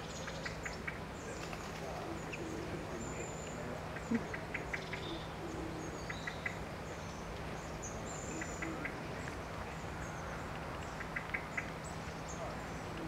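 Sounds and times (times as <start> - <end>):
small birds chirping: 0.0 - 13.0
steady outdoor hiss: 0.0 - 13.0.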